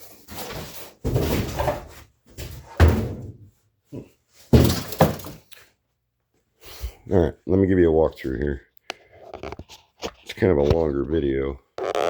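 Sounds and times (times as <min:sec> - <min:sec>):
hard objects thudding and knocking: 0:00.3 - 0:03.5, 0:04.5 - 0:05.5.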